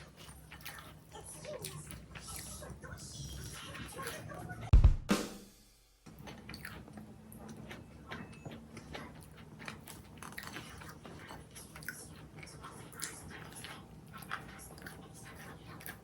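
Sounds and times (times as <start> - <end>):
person chewing crunchy food: 0.0 - 4.2, 6.1 - 16.0.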